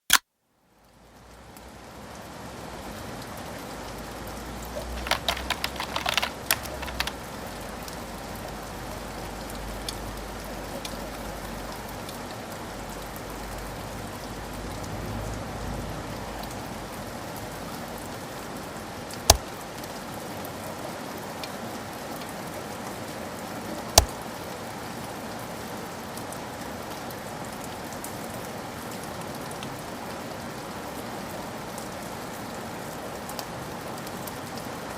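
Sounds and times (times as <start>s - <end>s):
small clicks: 5.0s - 7.2s
steady rain: 24.8s - 34.9s.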